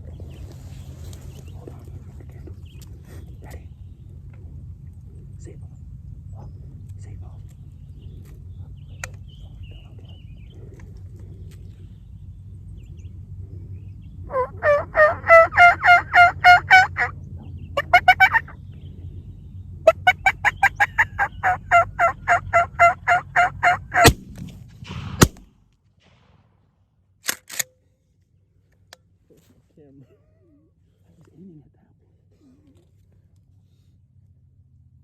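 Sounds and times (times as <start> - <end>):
wild turkeys calling: 13.0 - 19.2, 19.8 - 24.2
shotgun blasts: 24.0 - 26.7.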